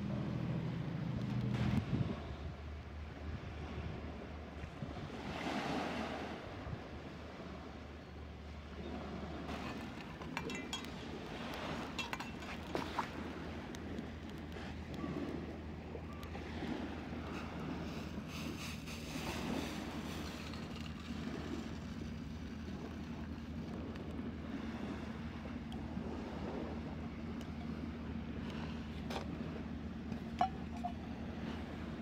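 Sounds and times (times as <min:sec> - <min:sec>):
low rumble: 0:00.0 - 0:05.2
wind on microphone: 0:01.0 - 0:07.0
waves washing on beach: 0:02.9 - 0:07.8, 0:08.5 - 0:32.0.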